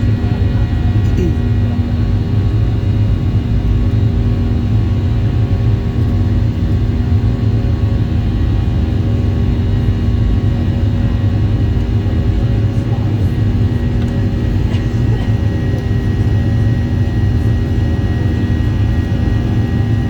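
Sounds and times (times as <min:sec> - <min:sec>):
jet engines heard from cabin: 0:00.0 - 0:20.0.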